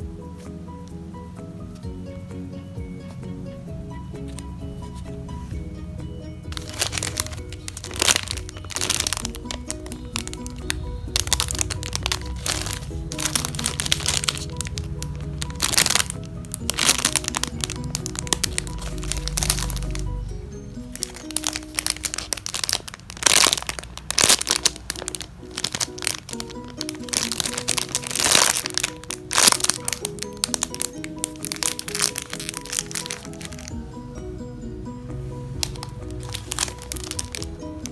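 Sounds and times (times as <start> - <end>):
background music: 0.0 - 37.9
squishy toys crinkling: 6.5 - 20.2, 20.9 - 33.8, 35.6 - 37.9.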